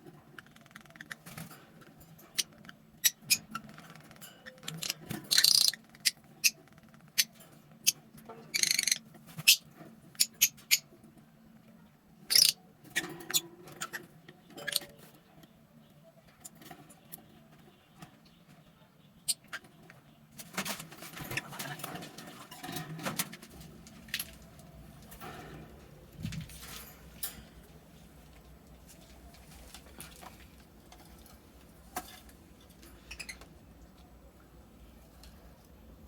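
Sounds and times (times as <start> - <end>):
lovebirds chirping: 24.0 - 36.0.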